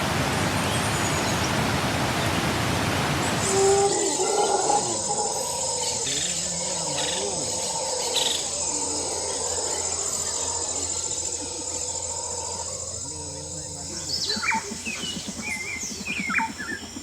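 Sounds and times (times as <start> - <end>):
insects chirring: 0.0 - 17.0
faint voices: 3.4 - 15.7.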